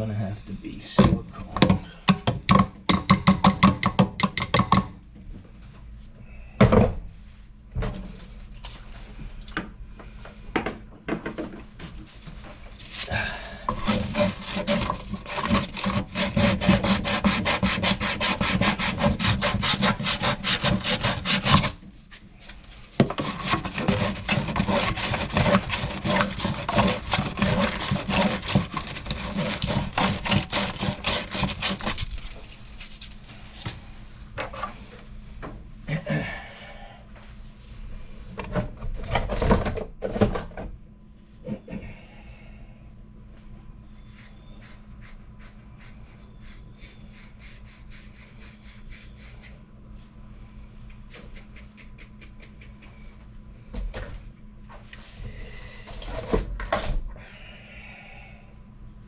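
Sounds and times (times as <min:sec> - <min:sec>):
scattered knocks: 0:01.0 - 0:04.9
hand tool scraping strokes: 0:11.9 - 0:33.7, 0:44.0 - 0:49.6.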